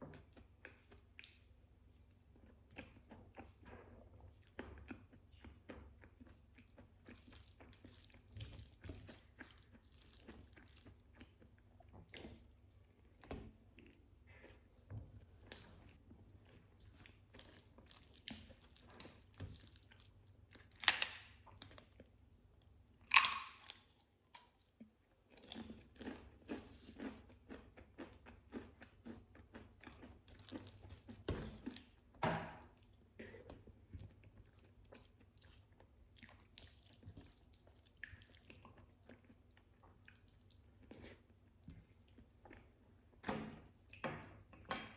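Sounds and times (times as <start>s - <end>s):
wet chewing with clicks: 0.1s - 44.1s
crisp crunching bites: 23.1s - 23.9s.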